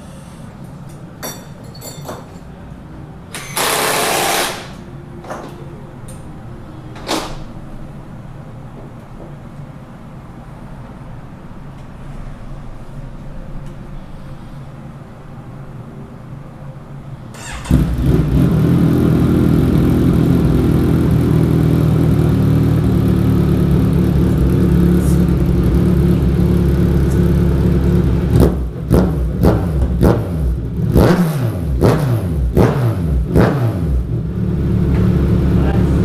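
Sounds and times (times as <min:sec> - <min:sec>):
motorcycle engine idling and revving: 0:17.4 - 0:36.0.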